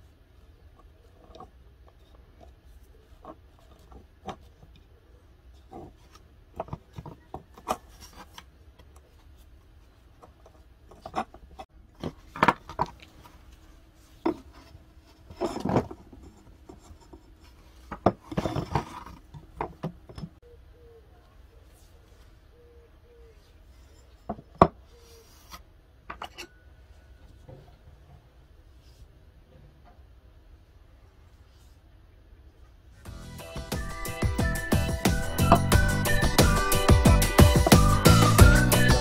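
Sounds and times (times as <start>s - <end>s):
cord rubbing and scraping: 0.6s - 20.4s, 33.8s - 39.0s.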